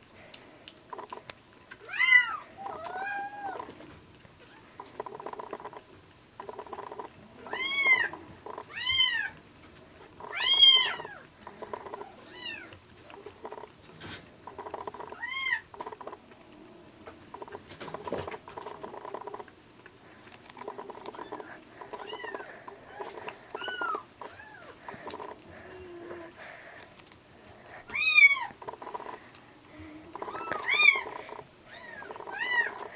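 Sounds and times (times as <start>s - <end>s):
background noise: 0.0s - 32.9s
kittens mewing: 1.9s - 3.8s, 4.4s - 9.4s, 10.0s - 13.8s, 20.5s - 26.8s, 27.7s - 32.9s.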